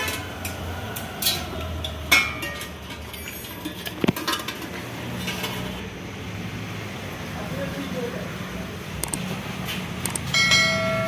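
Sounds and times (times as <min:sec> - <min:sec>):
tools clinking on metal engine parts: 0:00.0 - 0:05.7.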